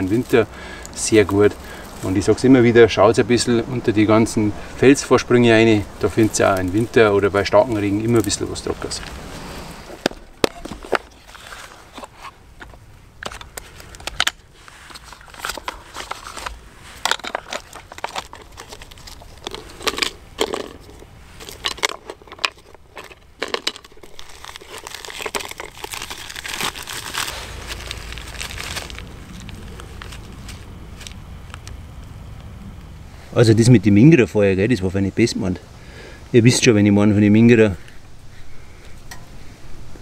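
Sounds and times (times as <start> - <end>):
twigs rustling: 0.0 - 33.7
twigs snapping: 6.0 - 32.9.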